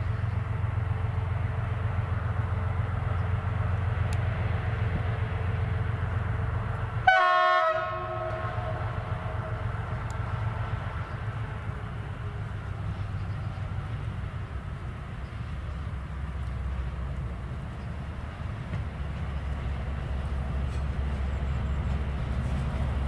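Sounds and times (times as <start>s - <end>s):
train rumbling: 0.0s - 23.0s
locomotive horn blast: 7.0s - 9.5s.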